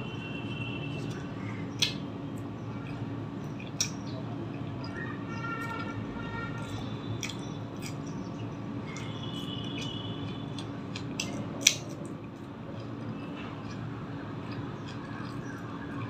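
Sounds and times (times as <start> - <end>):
chewing with wet mouth clicks: 0.9 - 6.0, 6.6 - 16.0.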